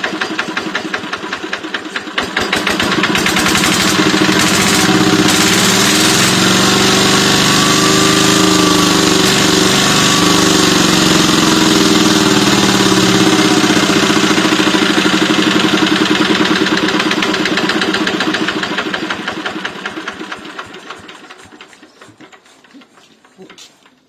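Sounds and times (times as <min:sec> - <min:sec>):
diesel engine clattering: 0:00.0 - 0:24.0.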